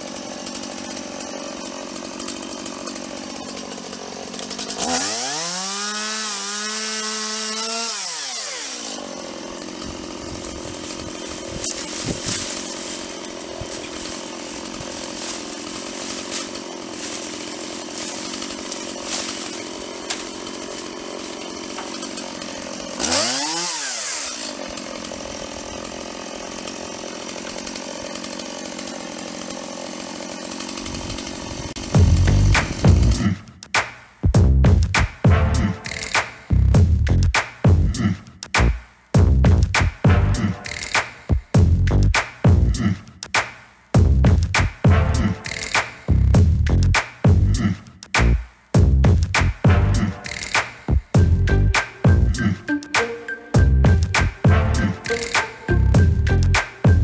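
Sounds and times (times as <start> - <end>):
saw engine idling and revving: 0.0 - 33.5, 34.4 - 43.0, 44.0 - 57.0.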